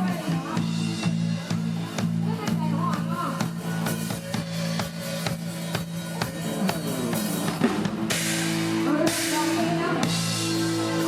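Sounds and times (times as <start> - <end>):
drum kit steady beat: 0.0 - 11.0
live band music: 0.0 - 11.0
cymbal washes: 4.0 - 11.0.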